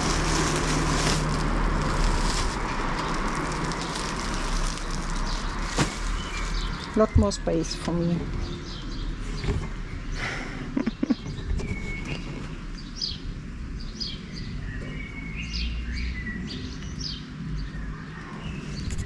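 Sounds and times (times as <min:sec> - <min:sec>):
steady low rumble: 0:00.0 - 0:07.8
songbirds chirping: 0:00.0 - 0:19.0.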